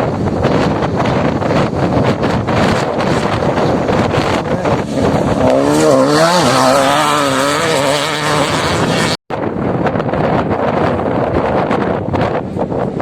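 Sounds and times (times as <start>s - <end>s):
off-road motorcycle engine: 0.0s - 13.0s
wind buffeting microphone: 0.0s - 13.0s.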